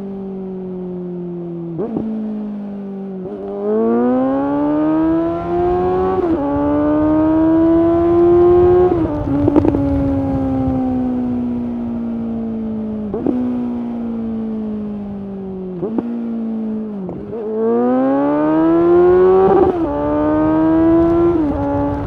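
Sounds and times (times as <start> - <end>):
motorcycle engine revving: 0.0 - 22.0
exhaust crackles: 4.6 - 22.0.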